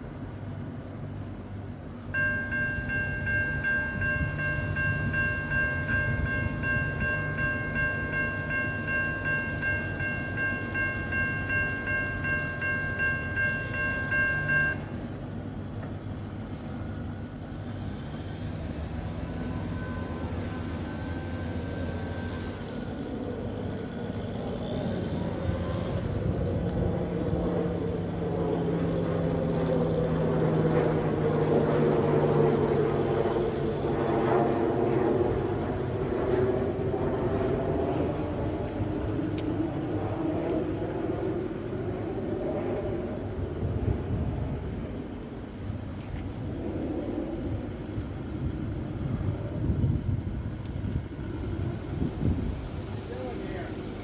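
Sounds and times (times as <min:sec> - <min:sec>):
approaching train rumble: 0:00.0 - 0:54.0
level crossing bell ringing: 0:02.2 - 0:14.8.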